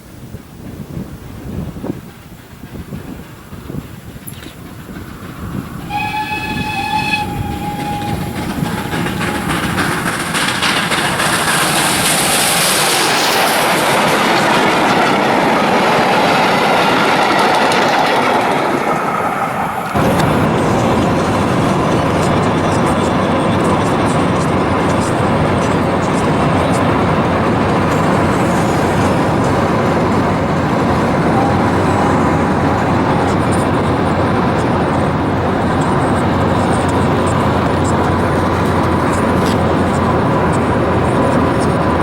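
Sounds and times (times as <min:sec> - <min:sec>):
train rushing clatter: 0:00.0 - 0:42.0
steam locomotive whistle: 0:05.8 - 0:10.8, 0:28.0 - 0:33.5.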